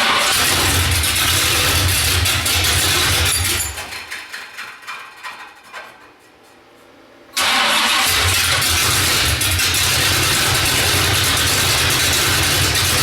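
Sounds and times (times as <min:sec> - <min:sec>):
car engine running rough: 0:00.0 - 0:03.6, 0:07.4 - 0:13.0.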